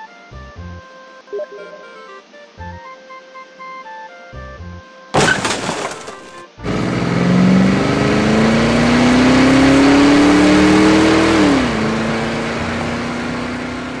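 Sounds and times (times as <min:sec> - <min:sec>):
car engine revving: 0:06.6 - 0:14.0.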